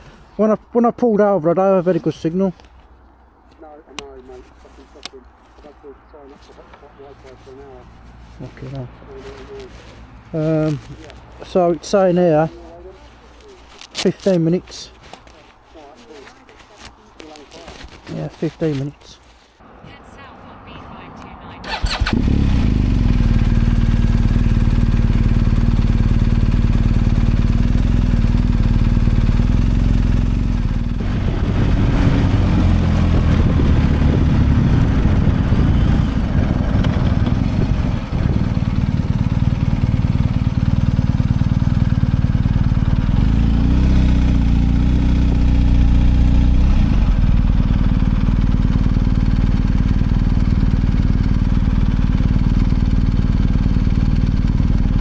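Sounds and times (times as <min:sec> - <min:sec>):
motorcycle engine pulling away: 0:21.6 - 0:55.0.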